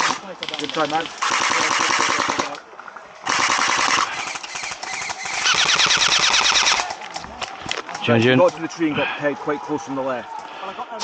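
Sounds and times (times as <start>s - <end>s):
airsoft rifles firing bursts: 0.0s - 2.6s, 3.2s - 7.1s.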